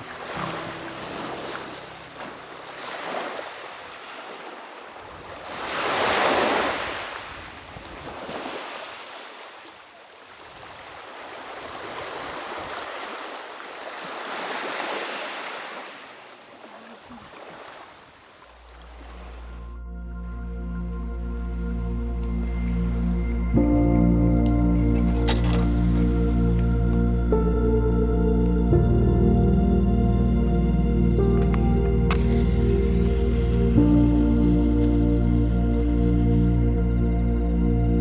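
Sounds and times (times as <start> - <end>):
music: 0.0 - 2.8, 19.4 - 38.0
sea waves washing onto shore: 0.0 - 19.7.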